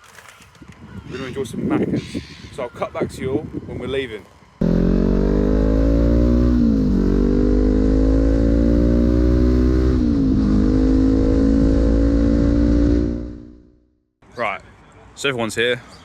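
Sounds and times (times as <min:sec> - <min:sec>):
motorcycle engine accelerating: 0:04.6 - 0:13.8.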